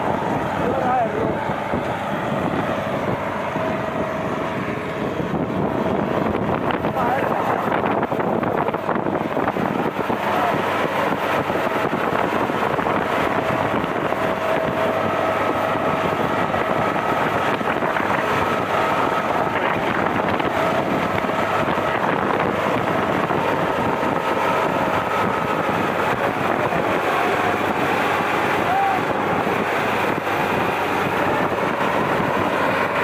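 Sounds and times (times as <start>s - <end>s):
vehicle running: 0.0s - 33.0s
wind noise on microphone: 0.0s - 33.0s.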